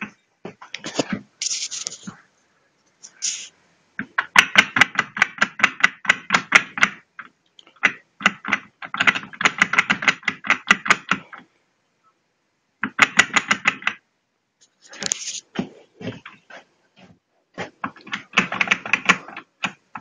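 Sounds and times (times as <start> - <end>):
cv joint rapid clicking knocks: 4.0 - 11.4, 12.8 - 14.0, 17.6 - 20.0.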